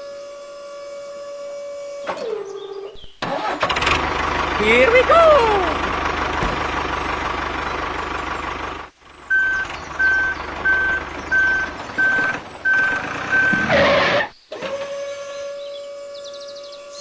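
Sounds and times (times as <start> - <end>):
engine rumble: 3.0 - 14.4
reversing alarm beeps: 9.3 - 14.0
faint motor hum: 14.7 - 17.0.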